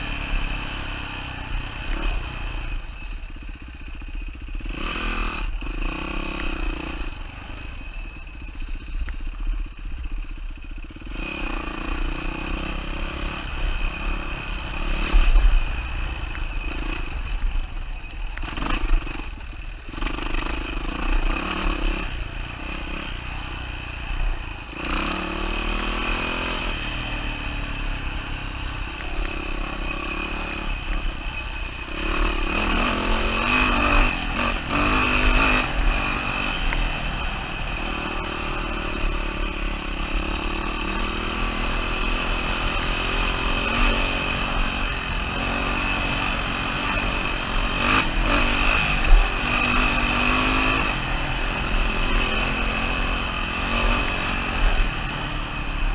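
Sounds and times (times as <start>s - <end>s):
dirt bike engine revving: 4.2s - 8.8s, 9.5s - 55.9s.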